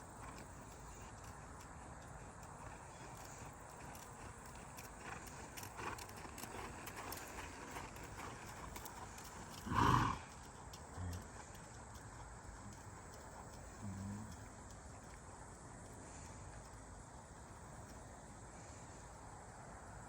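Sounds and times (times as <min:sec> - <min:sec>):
faint hoofbeats: 0:00.0 - 0:19.6
short loud horse sound: 0:09.6 - 0:10.3.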